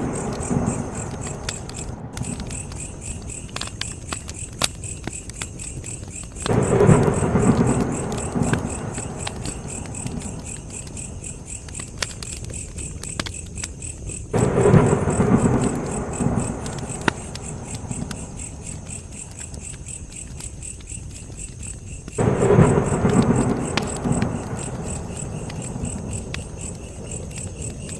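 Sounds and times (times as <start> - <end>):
deep rumble: 0.0 - 3.6, 22.2 - 27.9
campfire crackling and popping: 0.0 - 27.9
crickets chirping: 0.0 - 27.9.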